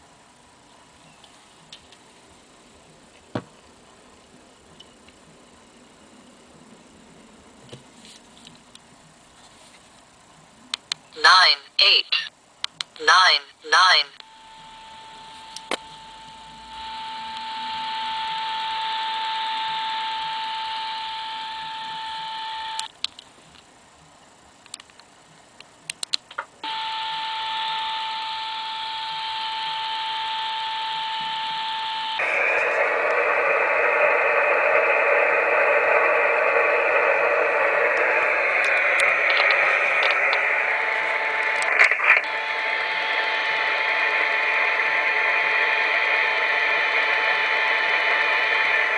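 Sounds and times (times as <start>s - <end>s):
receiver hiss: 0.0s - 48.9s
steady beat tone from radio: 28.3s - 48.9s.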